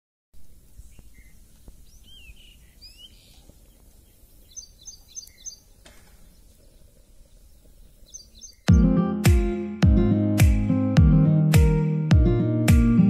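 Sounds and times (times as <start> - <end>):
small birds chirping: 0.4 - 8.9.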